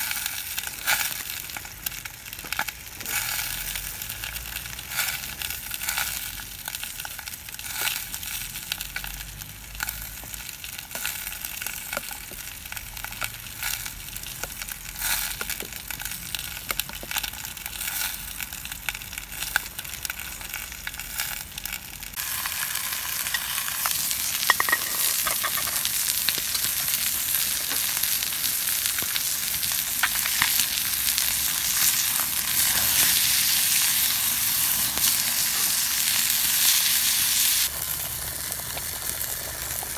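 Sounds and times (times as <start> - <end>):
food sizzling in a pan: 0.0 - 39.9
small crackles: 0.1 - 36.9.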